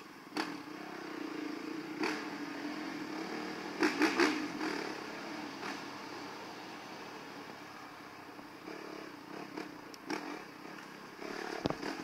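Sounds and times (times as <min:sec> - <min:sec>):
engine revving bursts: 0:00.3 - 0:07.2, 0:08.5 - 0:12.0.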